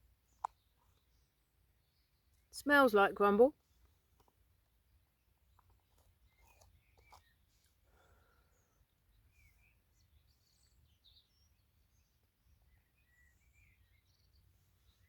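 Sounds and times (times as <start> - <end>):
faint bird chirps: 5.2 - 15.0.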